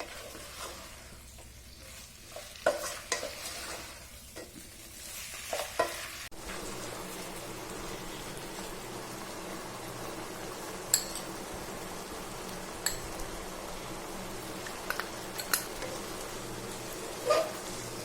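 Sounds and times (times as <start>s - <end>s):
frying hiss: 0.0s - 18.0s
metal spoon clinking on pan: 10.9s - 11.3s, 12.8s - 13.1s, 14.9s - 15.9s.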